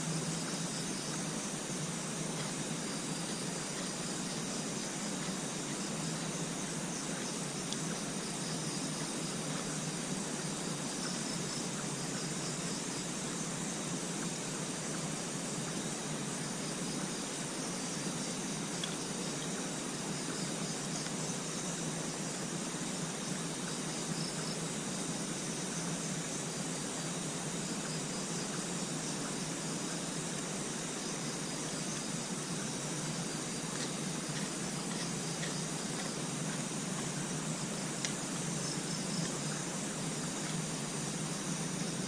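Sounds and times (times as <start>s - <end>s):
constant even hiss: 0.0s - 42.0s
insects chirring: 0.0s - 42.0s.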